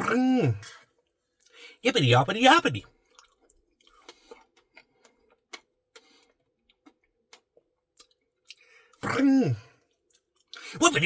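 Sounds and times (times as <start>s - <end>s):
wet mouth clicks eating: 3.1s - 8.6s.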